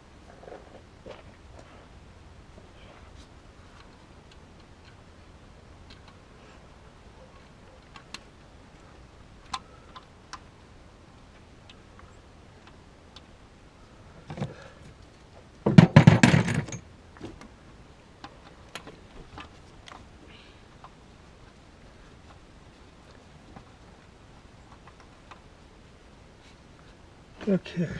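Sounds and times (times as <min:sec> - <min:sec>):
knock: 0:15.7 - 0:16.7
loud rapid metal rattle: 0:15.8 - 0:16.8.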